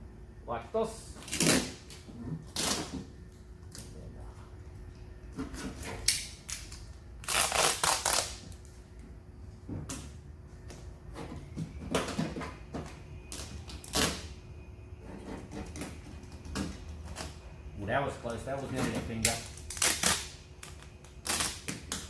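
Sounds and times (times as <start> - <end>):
duct tape tearing off roll: 1.2 - 3.1, 6.0 - 8.7, 13.4 - 14.3, 19.2 - 22.0.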